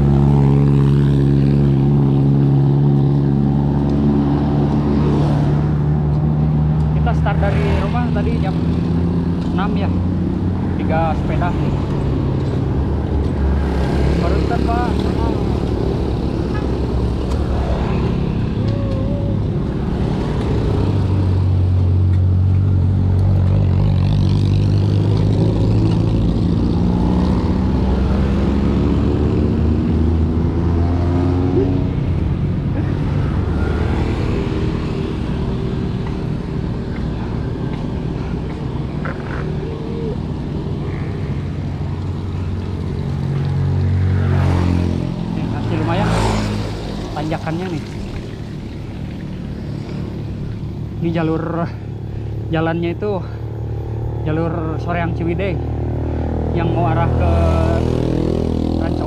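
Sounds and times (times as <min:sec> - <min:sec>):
road and wind noise: 0:00.0 - 0:59.0.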